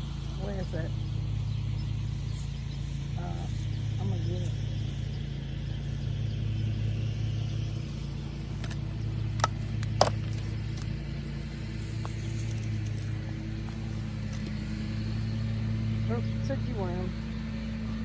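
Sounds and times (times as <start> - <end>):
low motor hum: 0.0 - 18.0
sharp clicks: 8.6 - 11.0.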